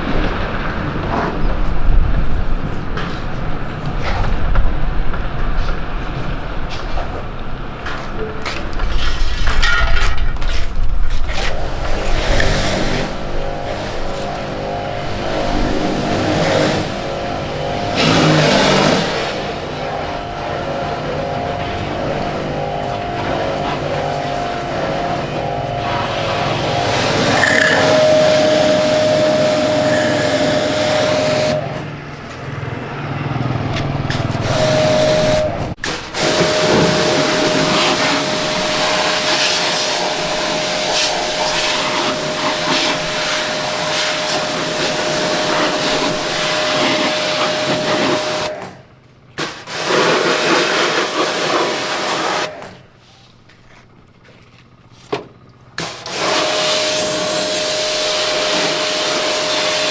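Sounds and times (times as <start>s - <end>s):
small motor whining: 10.8s - 49.0s, 55.8s - 59.9s
loud hiss: 11.4s - 31.6s, 34.1s - 48.5s, 55.8s - 59.9s.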